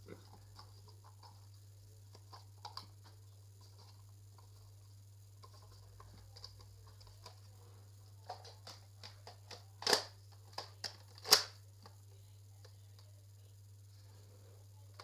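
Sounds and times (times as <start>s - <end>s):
toy blaster plastic clicks: 9.2s - 11.6s.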